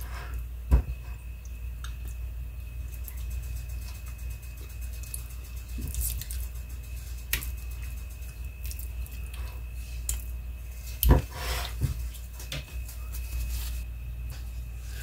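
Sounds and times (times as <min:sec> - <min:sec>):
wet squishing and scraping: 0:02.9 - 0:13.9.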